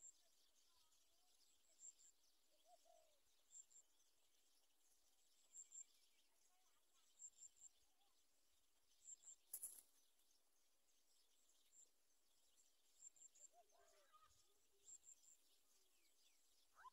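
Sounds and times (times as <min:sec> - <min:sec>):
soft low bird calls: 0:13.0 - 0:16.9.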